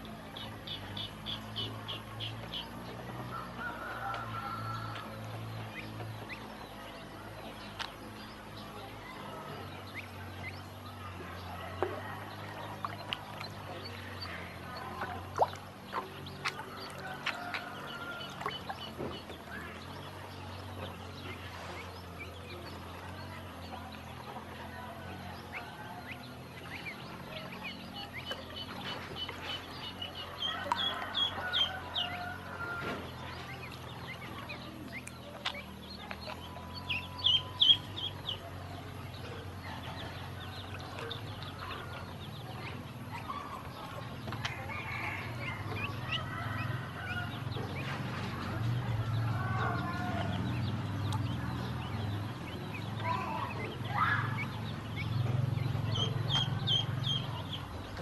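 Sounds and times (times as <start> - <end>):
ducklings peeping: 0.0 - 58.0.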